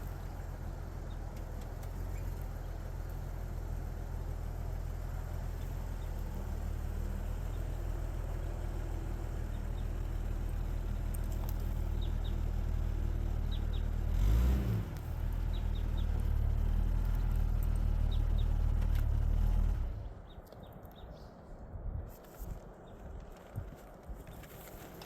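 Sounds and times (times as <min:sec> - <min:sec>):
jeep engine running: 0:00.0 - 0:20.2.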